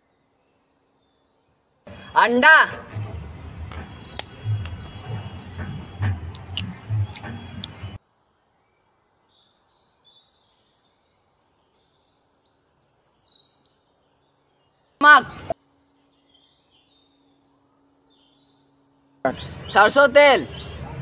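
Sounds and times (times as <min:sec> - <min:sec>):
small birds chirping: 0:00.0 - 0:21.0
handling thumps and clicks: 0:03.0 - 0:08.0.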